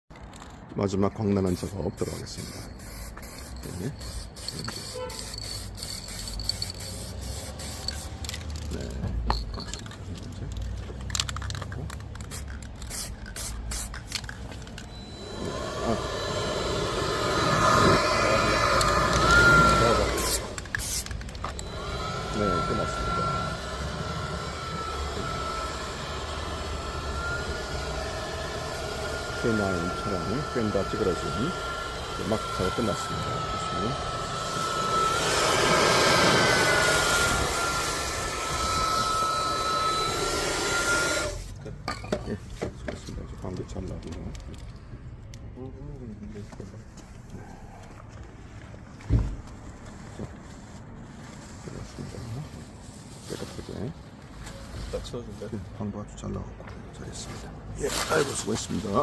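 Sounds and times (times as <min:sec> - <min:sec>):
short hissing bursts: 0:02.0 - 0:08.3, 0:12.2 - 0:14.1, 0:15.2 - 0:22.4
power tool motor whine: 0:14.6 - 0:41.5
machine rushing noise: 0:14.8 - 0:41.4.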